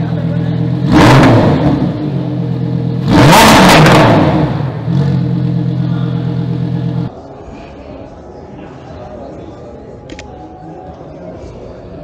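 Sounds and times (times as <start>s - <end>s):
car engine idling and revving: 0.0s - 7.1s.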